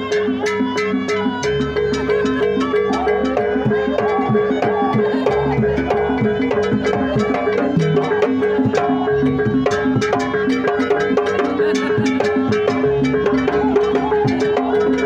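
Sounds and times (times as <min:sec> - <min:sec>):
drum: 0:00.0 - 0:15.0
struck metal percussion: 0:00.0 - 0:15.0.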